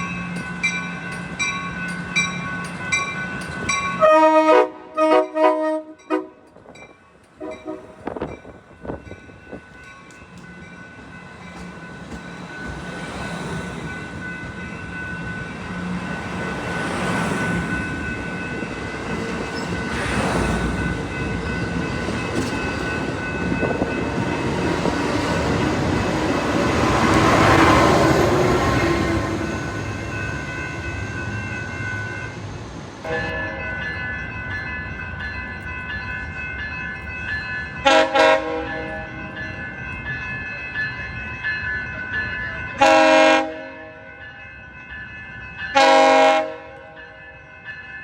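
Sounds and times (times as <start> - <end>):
train passing rumble: 0.0 - 48.0
train horn: 4.0 - 6.5, 7.4 - 8.2, 33.0 - 33.8, 37.8 - 39.2, 42.8 - 44.1, 45.8 - 47.2.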